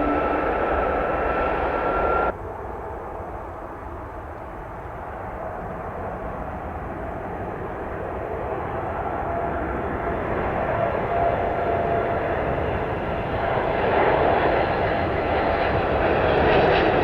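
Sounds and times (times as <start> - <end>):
jet engines rushing: 0.0 - 2.4
faint whine: 0.0 - 2.9.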